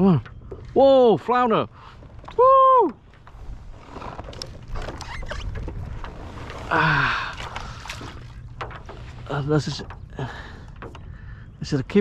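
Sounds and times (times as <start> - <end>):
low wind rumble: 0.0 - 12.0
fish splashing and knocking: 3.0 - 11.4.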